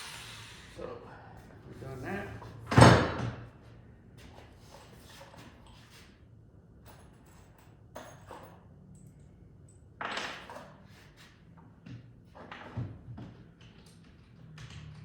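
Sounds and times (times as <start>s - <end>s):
knocks and clunks of work handled: 11.8s - 14.1s.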